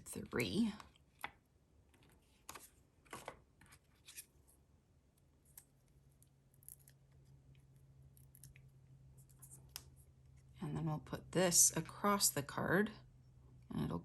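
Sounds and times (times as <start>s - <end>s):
faint low hum: 3.7s - 14.0s.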